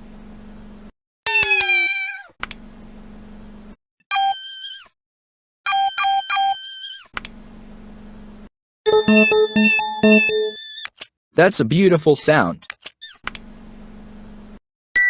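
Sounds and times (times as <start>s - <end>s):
phone alert tones: 5.7s - 6.8s, 8.9s - 10.6s
quick beeps: 8.9s - 10.6s.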